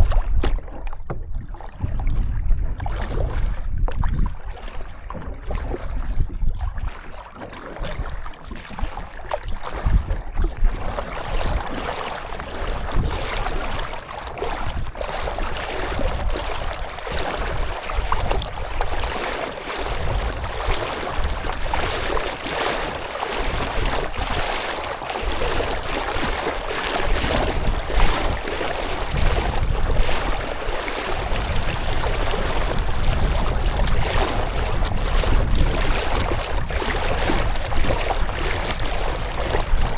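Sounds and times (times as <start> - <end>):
low fluctuating rumble: 0.0 - 7.0, 25.2 - 39.9
water splashing around canoe: 0.0 - 39.9.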